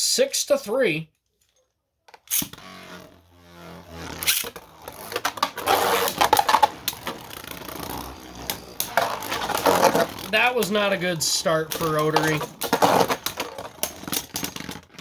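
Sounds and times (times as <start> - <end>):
spinning tops whirring: 2.3 - 15.0
spinning tops clashing: 4.2 - 14.6.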